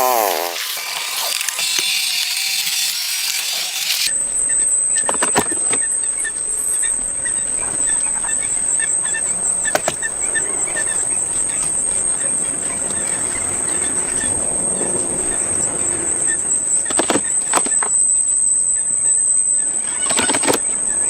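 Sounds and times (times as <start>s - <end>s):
pressure washer motor winding down: 0.0s - 4.1s
spraying water hiss: 0.0s - 4.1s
high-pitched insect drone: 0.0s - 9.6s.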